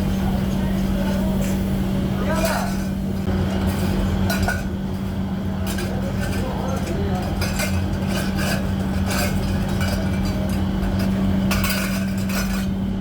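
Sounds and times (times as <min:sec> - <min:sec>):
machine humming: 0:00.0 - 0:13.0
tool scraping on metal: 0:05.7 - 0:12.8.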